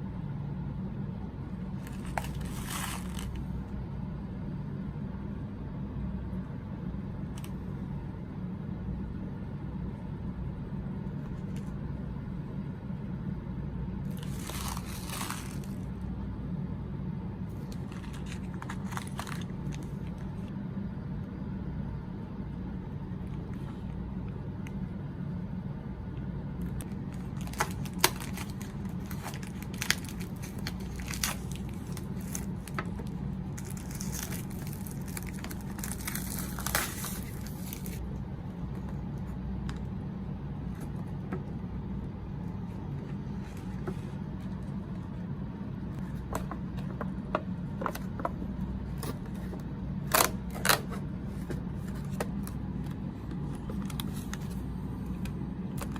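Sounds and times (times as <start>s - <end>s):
steady low hum: 0.0s - 55.9s
wrapper crinkling and tearing: 1.8s - 3.4s, 14.1s - 15.9s, 17.6s - 20.2s, 26.8s - 38.0s.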